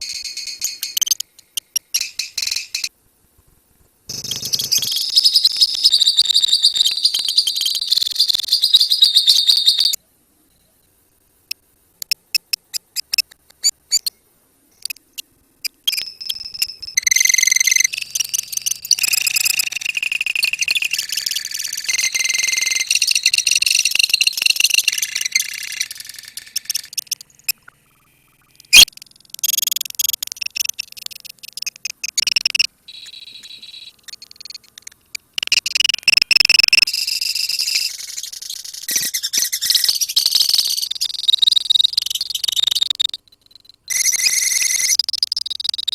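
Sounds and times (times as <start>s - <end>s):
lovebirds chirping and trilling: 4.1s - 10.0s, 15.6s - 35.6s
sharp click: 28.6s - 36.9s.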